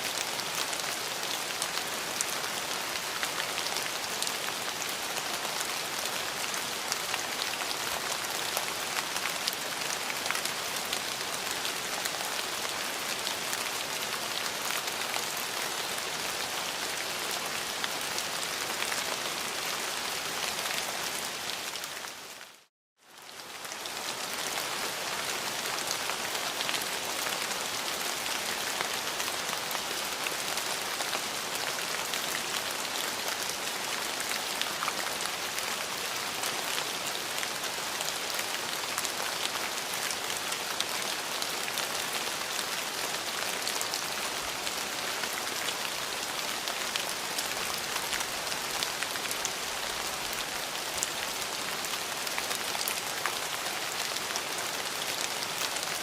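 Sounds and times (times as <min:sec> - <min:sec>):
raindrops ticking: 0:00.0 - 0:00.8
steady rainfall: 0:00.0 - 0:56.0.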